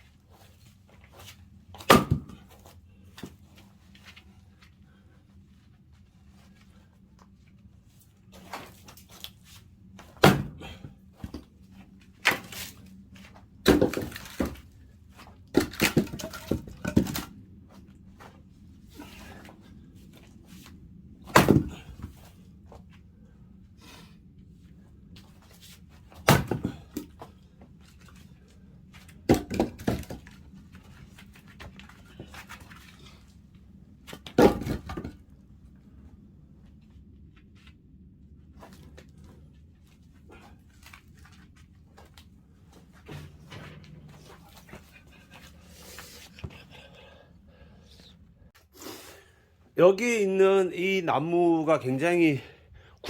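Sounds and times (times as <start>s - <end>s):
sharp knocks and thuds: 1.8s - 2.6s, 10.0s - 11.5s, 13.6s - 14.6s, 21.3s - 22.2s, 26.2s - 27.2s, 29.2s - 30.4s, 34.2s - 35.2s.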